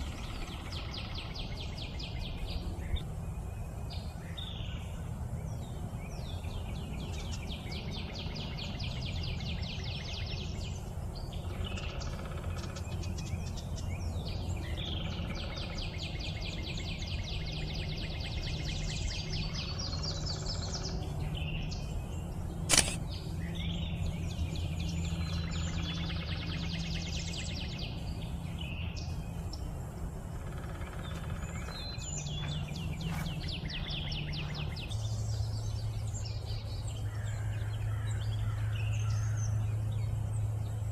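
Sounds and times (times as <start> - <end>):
low background rumble: 0.0 - 40.9
songbird singing fast trills: 0.0 - 40.9
sharp click: 22.7 - 23.0.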